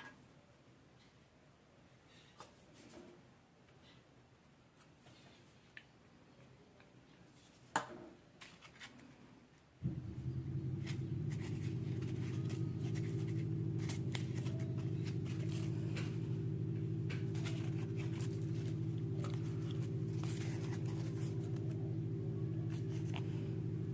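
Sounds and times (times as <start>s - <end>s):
steady low hum: 9.8s - 23.9s.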